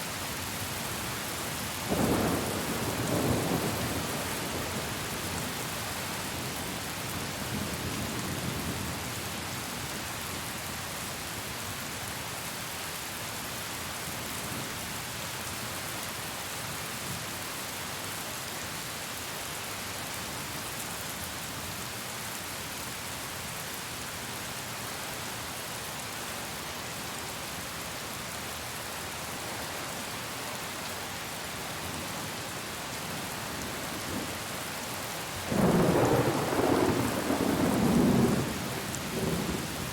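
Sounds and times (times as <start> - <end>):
heavy rain hissing: 0.0 - 8.1, 24.8 - 39.9
low rumble of thunder: 35.4 - 39.9.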